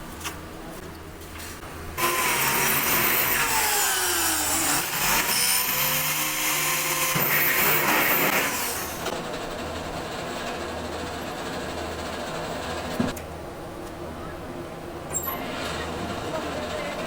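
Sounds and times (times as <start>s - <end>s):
power tool running: 2.0s - 9.1s.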